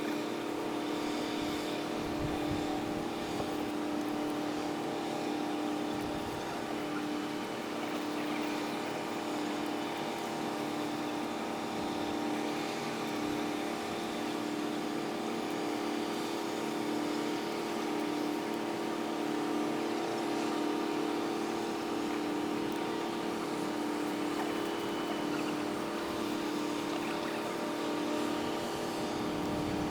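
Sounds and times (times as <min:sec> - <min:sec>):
harbour traffic noise: 0:22.4 - 0:29.9.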